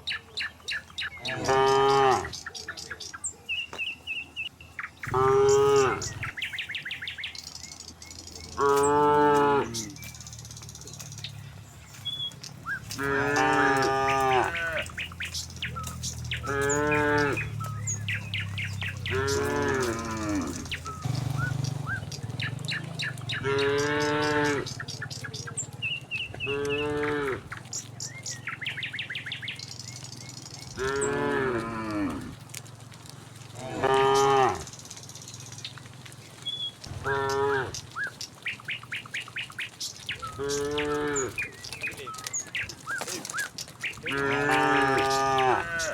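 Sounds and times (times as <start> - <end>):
cattle mooing: 1.2 - 2.5, 5.0 - 6.4, 8.5 - 10.2, 12.6 - 25.6, 26.2 - 27.6, 30.8 - 32.7, 33.4 - 34.8, 36.8 - 38.0, 40.2 - 42.2, 43.0 - 45.9.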